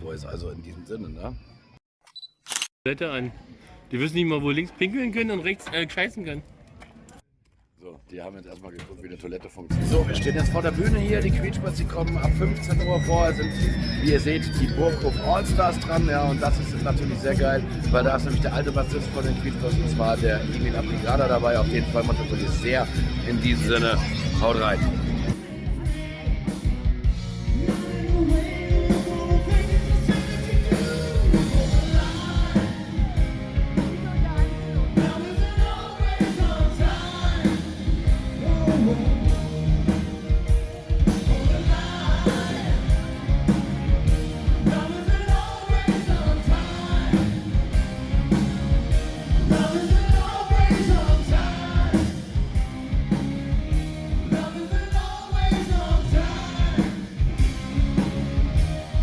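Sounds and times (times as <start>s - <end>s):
drum beat: 9.7s - 59.0s
live rock band playing: 9.7s - 59.0s
lead singer singing: 25.3s - 26.6s, 27.4s - 48.5s, 49.1s - 52.4s, 54.2s - 57.6s.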